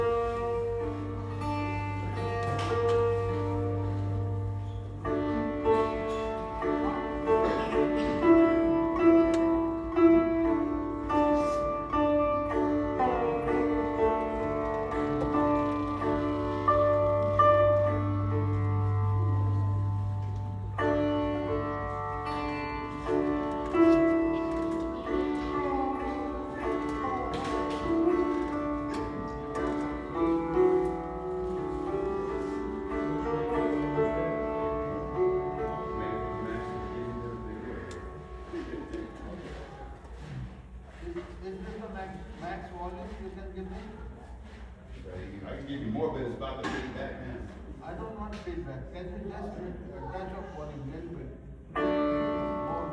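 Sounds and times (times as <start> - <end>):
sitar: 0.0 - 36.8.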